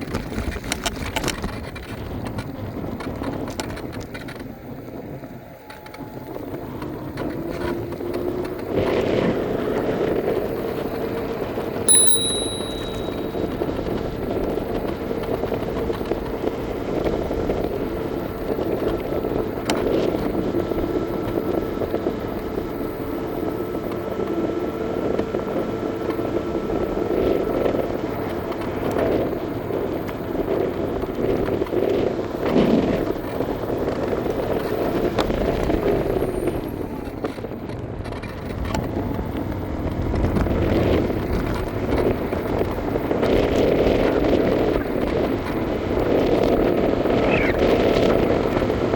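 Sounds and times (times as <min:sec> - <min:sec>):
thin steady whine: 0:11.9 - 0:13.5.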